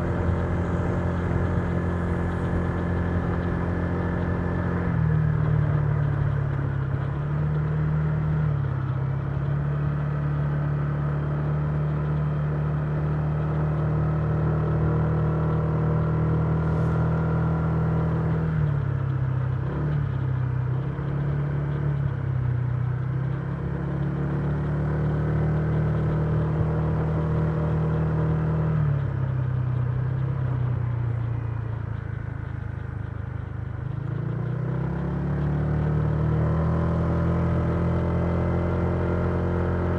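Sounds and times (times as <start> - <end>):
scooter engine running: 0.0 - 17.0.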